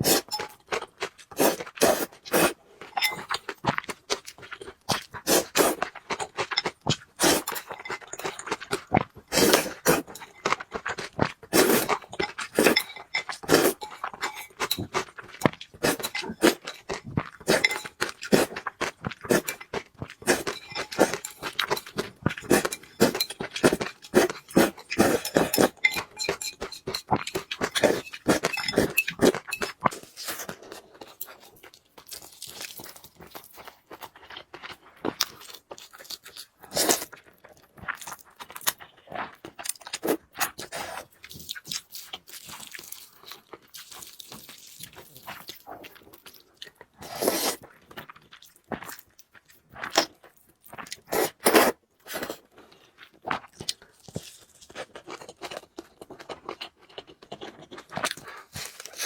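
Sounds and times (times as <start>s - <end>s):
wet chewing and crunching: 0.0s - 59.0s.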